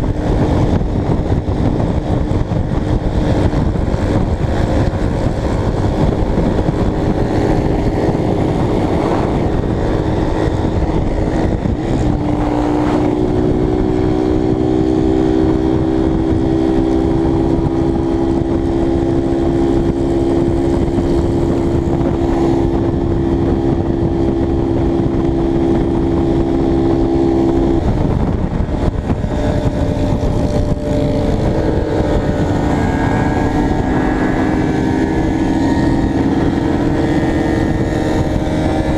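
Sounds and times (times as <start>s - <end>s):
motorcycle engine cruising: 0.0s - 38.9s
wind rush on microphone: 0.0s - 38.9s.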